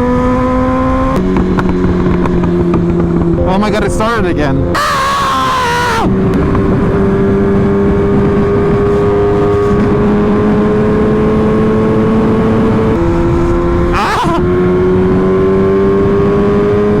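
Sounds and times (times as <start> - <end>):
motorcycle engine shifting gears: 0.0 - 3.4, 6.0 - 17.0
steady rush of noise: 12.7 - 15.2.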